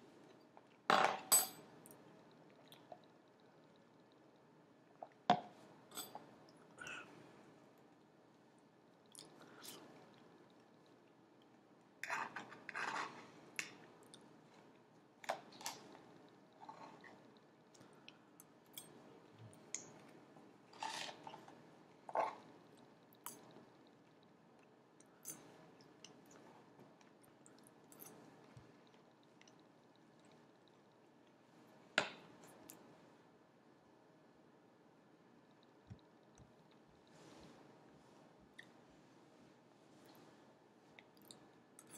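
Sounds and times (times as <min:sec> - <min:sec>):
small clicks and scrapes: 0:12.0 - 0:14.7, 0:20.7 - 0:22.5.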